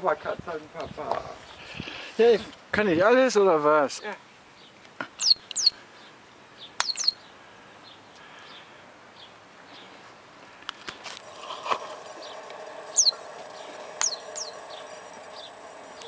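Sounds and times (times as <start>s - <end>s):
sharp clicks: 6.8s - 7.1s.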